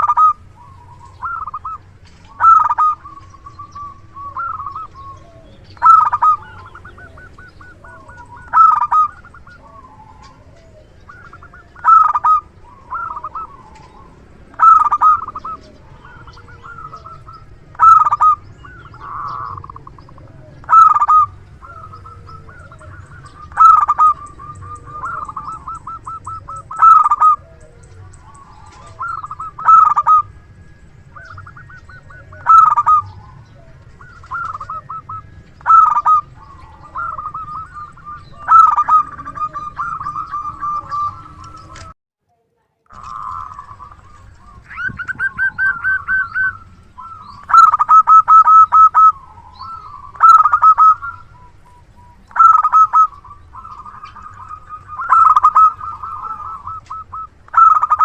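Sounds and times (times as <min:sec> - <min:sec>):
dove cooing: 0:00.0 - 0:42.0, 0:42.9 - 0:58.0.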